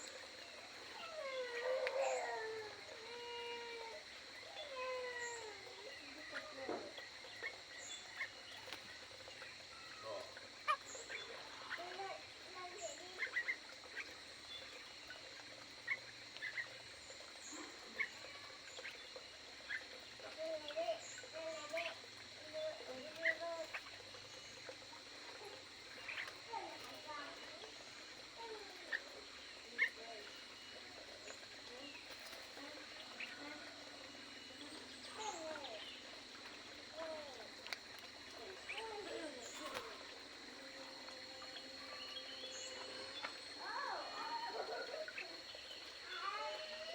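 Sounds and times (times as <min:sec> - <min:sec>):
birds chirping: 0:00.0 - 0:46.9
steady high-pitched hum: 0:00.0 - 0:46.9.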